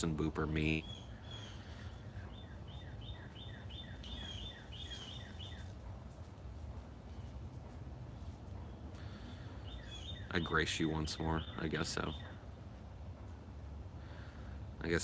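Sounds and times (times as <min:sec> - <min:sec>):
songbird singing: 0:00.0 - 0:06.2, 0:08.5 - 0:12.8
low outdoor rumble: 0:00.0 - 0:15.0.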